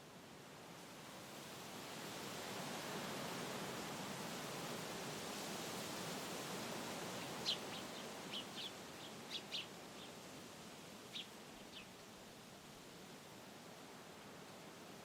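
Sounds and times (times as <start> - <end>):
wind rushing through trees: 0.0 - 15.0
small bird chirping: 7.4 - 10.1, 11.1 - 11.9.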